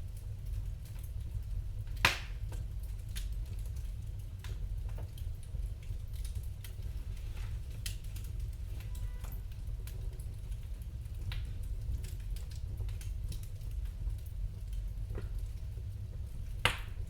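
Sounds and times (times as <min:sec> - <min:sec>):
wood fire crackling: 0:00.0 - 0:17.0
sharp pop from fire: 0:02.0 - 0:02.4, 0:16.6 - 0:17.0.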